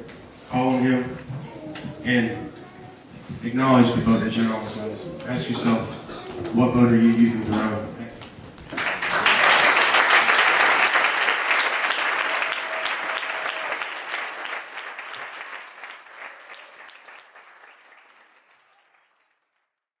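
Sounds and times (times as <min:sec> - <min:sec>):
congregation applauding: 0:08.7 - 0:19.8.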